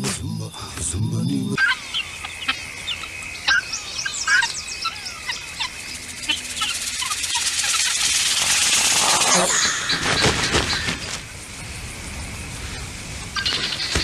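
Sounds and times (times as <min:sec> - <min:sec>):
small birds chirping: 0:00.0 - 0:14.0
hiss of noise: 0:05.4 - 0:14.0.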